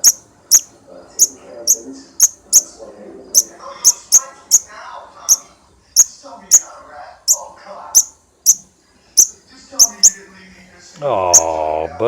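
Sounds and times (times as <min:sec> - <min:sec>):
fledgling bird begging chirps: 0:00.0 - 0:02.7, 0:03.3 - 0:04.7, 0:06.0 - 0:06.6, 0:07.3 - 0:08.6, 0:09.2 - 0:10.2.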